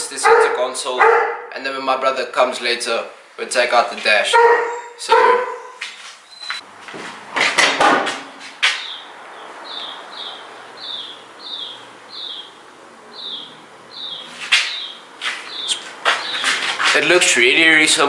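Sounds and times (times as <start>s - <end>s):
bird chirping: 4.3s - 6.6s, 8.3s - 16.8s
loud knocks and clatter: 7.3s - 8.3s.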